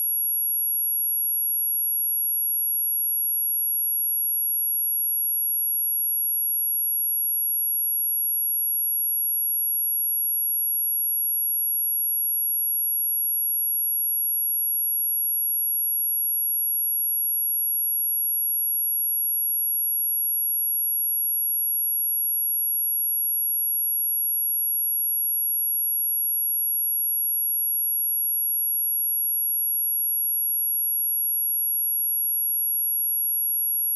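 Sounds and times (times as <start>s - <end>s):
high-pitched sine test tone: 18.9s - 33.9s.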